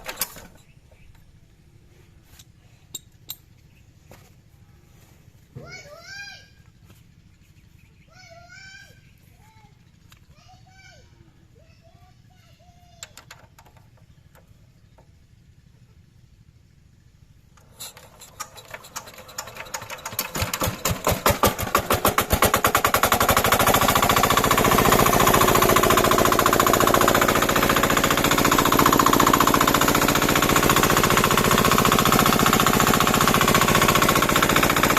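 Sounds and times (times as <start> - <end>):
small diesel engine starting: 13.5 - 34.9.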